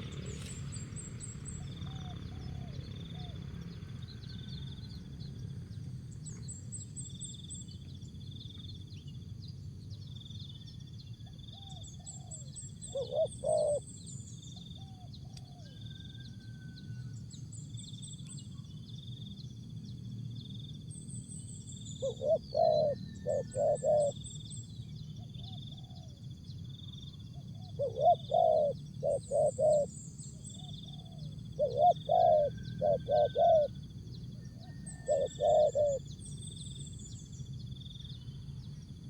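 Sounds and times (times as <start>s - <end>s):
small birds chirping: 0.0s - 16.3s, 17.6s - 39.0s
dove cooing: 11.6s - 13.9s, 22.0s - 24.2s, 27.6s - 33.9s, 34.5s - 36.1s.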